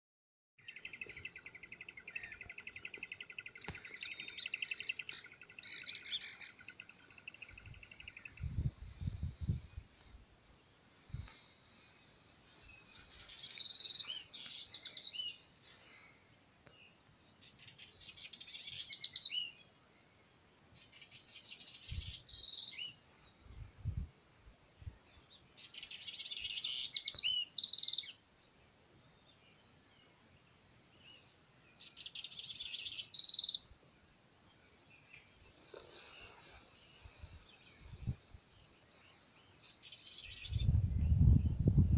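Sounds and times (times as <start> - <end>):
songbird trilling: 31.8 - 33.6.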